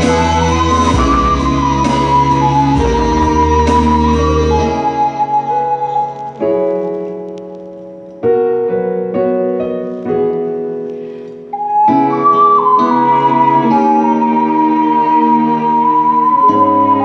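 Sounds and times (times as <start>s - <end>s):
piano playing slow chords: 0.0s - 17.0s.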